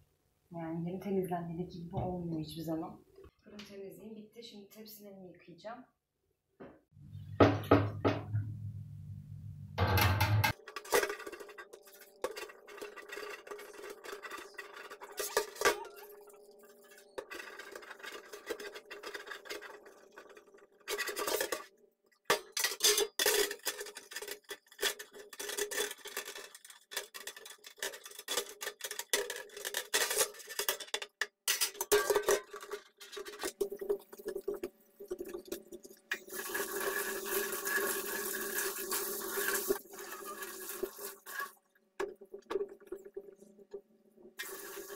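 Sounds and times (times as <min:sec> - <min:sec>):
metal trays clattering: 0:09.8 - 0:21.7, 0:22.3 - 0:33.9
tap water running: 0:33.5 - 0:43.8, 0:44.4 - 0:44.9.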